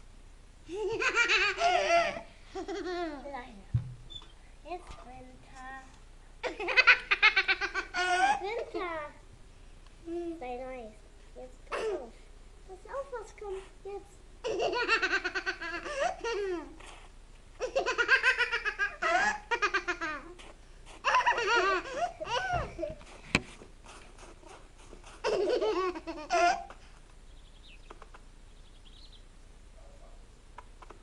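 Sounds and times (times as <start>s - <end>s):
small child giggling: 0.7s - 3.2s, 6.4s - 8.9s, 14.4s - 17.0s, 17.6s - 23.2s, 24.4s - 26.8s.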